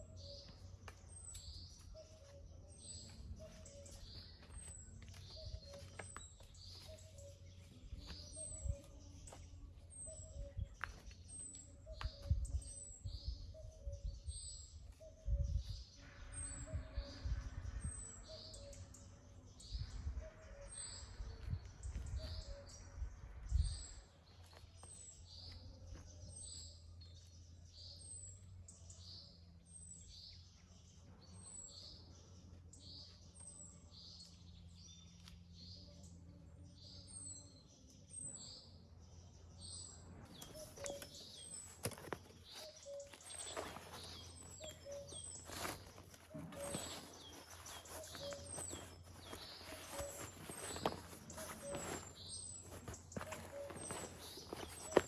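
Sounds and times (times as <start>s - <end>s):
bird chirping: 0.0s - 55.0s.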